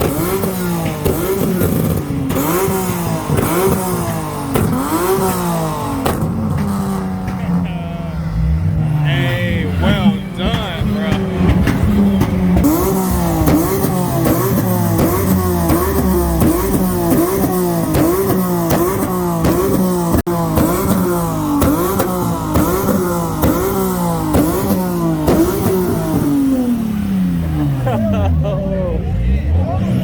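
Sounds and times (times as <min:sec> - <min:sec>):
exhaust pops and crackles: 0:00.0 - 0:07.9, 0:09.8 - 0:27.5
car engine revving in blips: 0:00.0 - 0:30.0.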